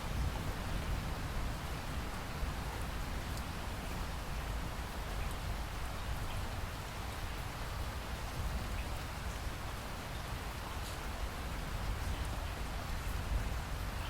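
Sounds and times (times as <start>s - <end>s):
steady rain hiss: 0.0s - 14.0s
faint raindrop ticks: 2.1s - 7.5s, 10.5s - 14.0s.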